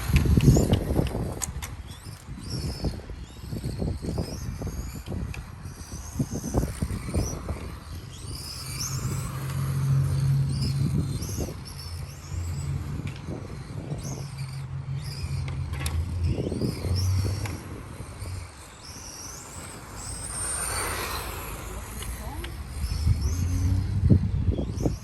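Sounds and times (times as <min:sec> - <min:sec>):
rc car motor whining: 0:00.0 - 0:25.0
low rumbles: 0:07.0 - 0:25.0.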